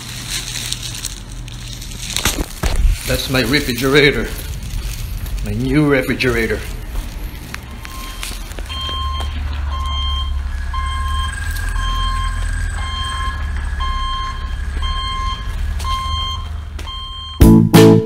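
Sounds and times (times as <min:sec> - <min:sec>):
low rumble: 0:00.6 - 0:17.4
truck reversing alarm beeping: 0:05.6 - 0:18.0.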